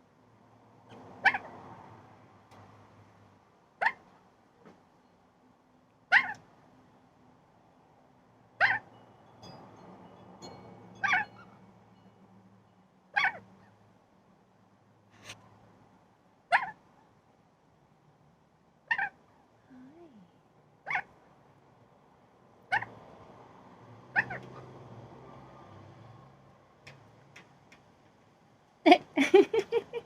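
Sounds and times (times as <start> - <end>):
faint clicks: 26.8 - 28.3.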